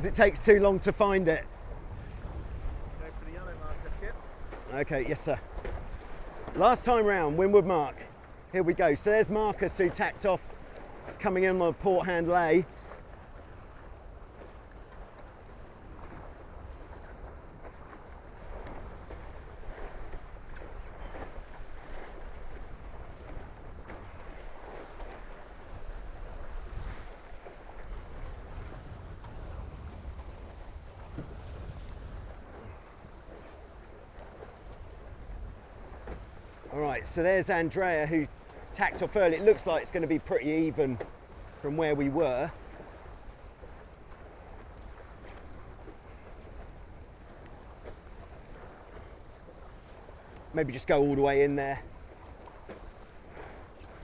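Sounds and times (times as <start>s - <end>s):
wind rumbling on microphone: 0.0s - 11.4s, 12.6s - 50.5s
water rushing past hulls: 0.0s - 54.0s.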